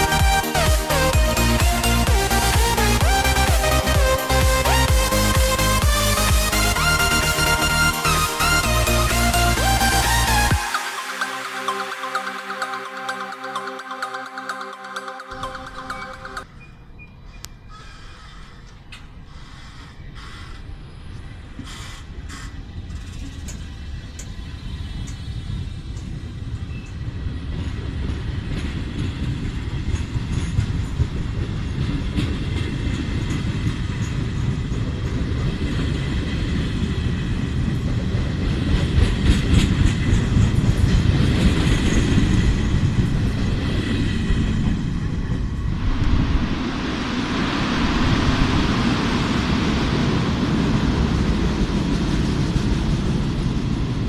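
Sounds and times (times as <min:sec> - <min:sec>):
passing train rushing: 0:00.0 - 0:16.7, 0:20.5 - 0:54.0
train wheels rumbling on rails: 0:20.4 - 0:54.0
faint high whine: 0:41.8 - 0:51.8.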